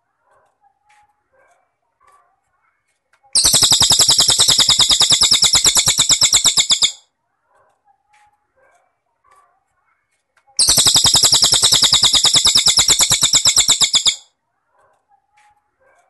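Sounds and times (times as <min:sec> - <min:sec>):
cricket trilling: 0:03.4 - 0:07.0, 0:10.6 - 0:14.2.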